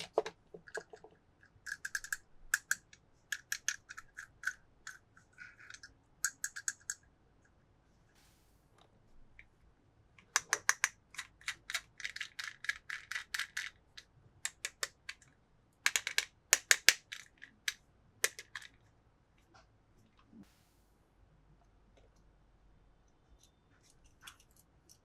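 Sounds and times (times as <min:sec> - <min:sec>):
toy cars clicking: 0:00.0 - 0:07.0, 0:10.2 - 0:15.3, 0:15.9 - 0:18.8.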